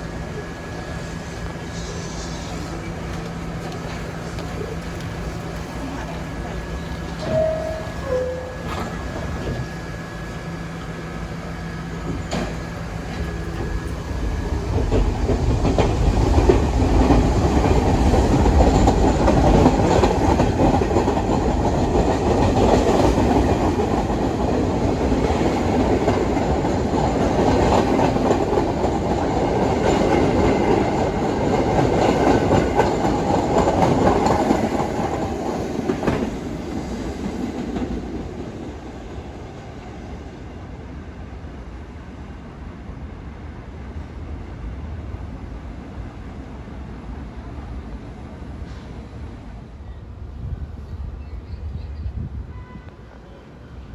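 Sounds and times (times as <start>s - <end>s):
subway train on tracks: 0.0s - 53.9s.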